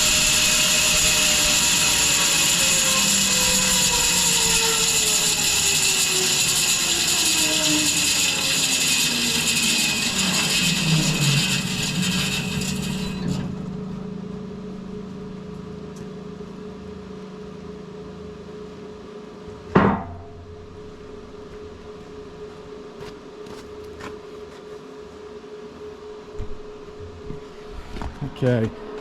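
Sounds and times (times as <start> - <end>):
bandsaw blade cutting log: 0.0 - 13.6
sawmill humming: 0.0 - 15.4.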